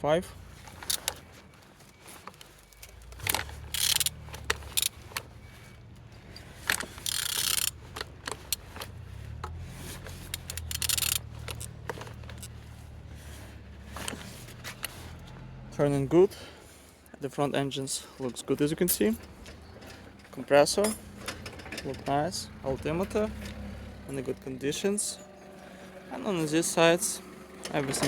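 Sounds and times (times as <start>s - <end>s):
metallic clicks and scrapes: 0.6s - 1.2s, 2.1s - 15.4s, 18.2s - 26.5s
low hum: 19.2s - 28.0s.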